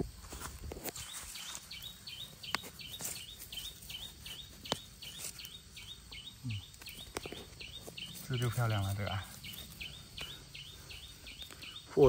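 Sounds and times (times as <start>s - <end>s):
knife clicking in dry soil: 0.5s - 7.8s
small bird chirping: 0.9s - 12.0s.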